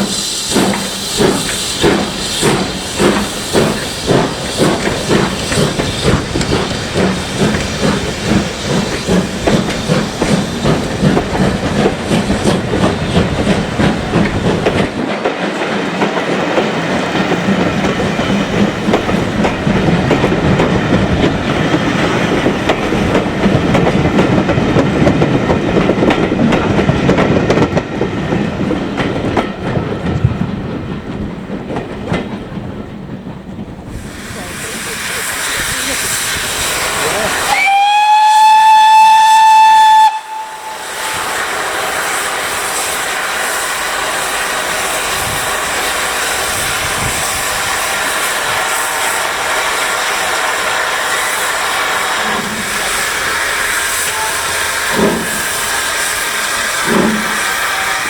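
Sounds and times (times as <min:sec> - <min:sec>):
steam locomotive chuffing: 0:00.0 - 0:58.0
train rushing with hiss: 0:00.0 - 0:58.0.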